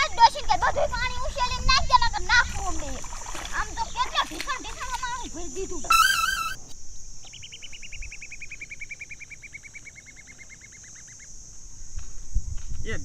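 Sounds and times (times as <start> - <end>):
insect buzz: 2.8 - 9.5
bird calling rapid high notes: 5.9 - 6.8.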